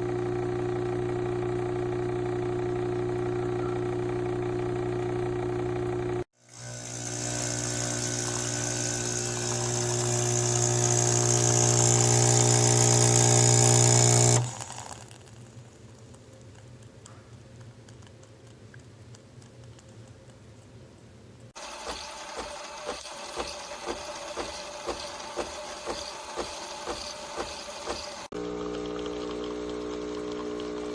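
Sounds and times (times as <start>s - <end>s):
espresso machine pump humming: 0.0s - 15.3s, 21.6s - 30.9s
espresso machine hiss: 0.1s - 15.2s, 21.6s - 30.9s.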